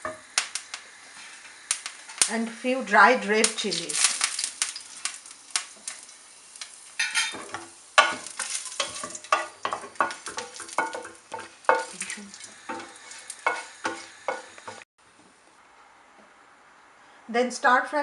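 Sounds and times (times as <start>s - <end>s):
food frying in hot oil: 0.0s - 14.9s
spatula scraping a pan: 7.0s - 14.8s.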